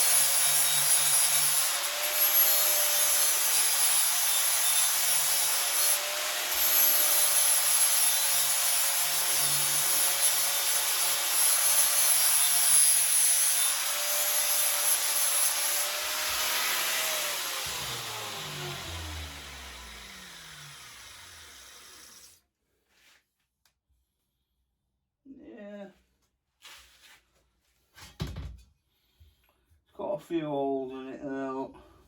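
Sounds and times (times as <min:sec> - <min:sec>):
angle grinder grinding metal: 0:00.0 - 0:22.4.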